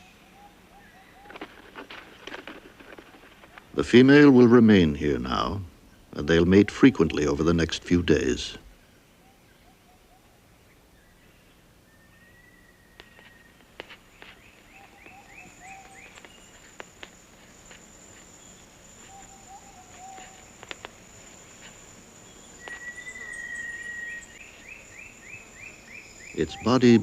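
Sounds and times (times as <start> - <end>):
low wavering animal calls: 9.1 - 10.6, 14.6 - 26.8
rapid chirping trills: 14.0 - 27.0
high-pitched insect drone: 14.8 - 27.0.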